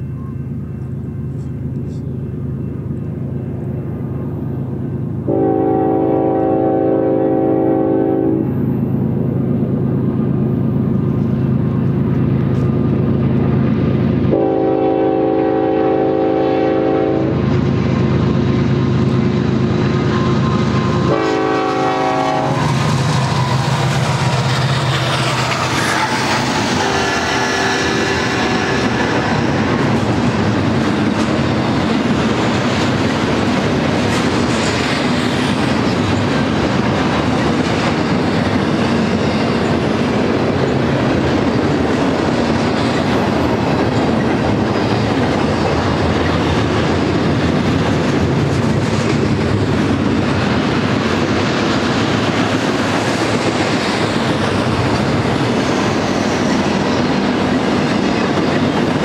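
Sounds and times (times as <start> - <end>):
diesel locomotive engines running: 0.0 - 59.0
train air horn blasts: 5.3 - 8.6, 14.3 - 17.4, 20.1 - 23.7, 25.7 - 29.9
freight cars rumbling and clattering: 28.3 - 59.0.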